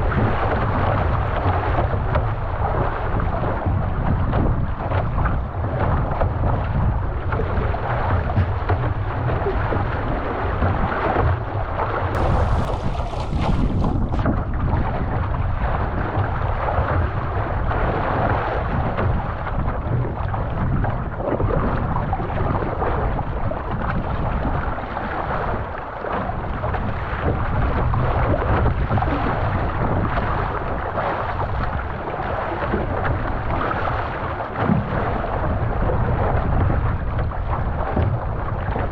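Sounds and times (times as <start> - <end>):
water rushing past canoe: 0.0 - 38.9
wind buffeting microphone: 0.0 - 38.9.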